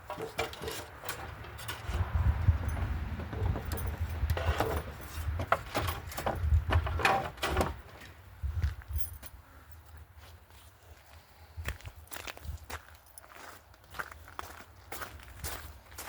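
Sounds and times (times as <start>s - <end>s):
low rumble on microphone: 1.8s - 4.4s.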